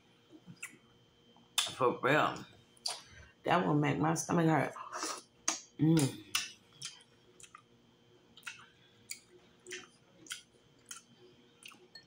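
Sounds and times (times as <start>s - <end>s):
wet mouth chewing: 2.8s - 3.1s, 5.5s - 7.7s, 8.4s - 12.0s.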